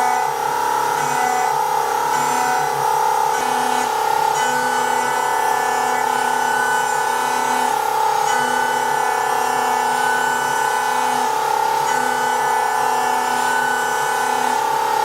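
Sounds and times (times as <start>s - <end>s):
cutter milling board: 0.0s - 15.0s
router spindle whining: 0.0s - 15.0s.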